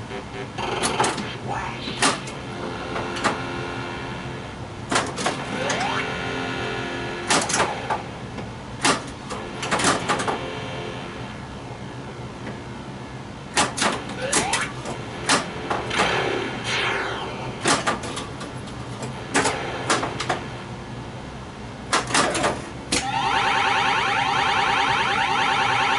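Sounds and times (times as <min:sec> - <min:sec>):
steady electronic game sound: 0:00.0 - 0:25.9
pinball flippers and ball clacking: 0:00.7 - 0:03.6, 0:04.9 - 0:06.1, 0:07.2 - 0:10.5, 0:13.5 - 0:16.4, 0:17.6 - 0:20.6, 0:21.9 - 0:23.2.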